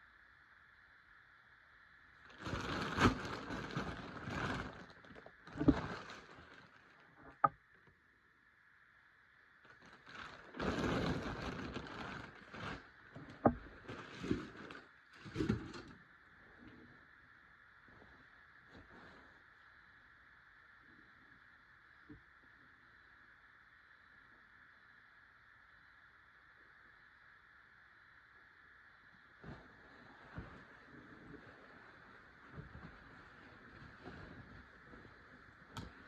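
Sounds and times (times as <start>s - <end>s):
rustling of unboxing: 2.4s - 7.1s, 9.7s - 15.9s.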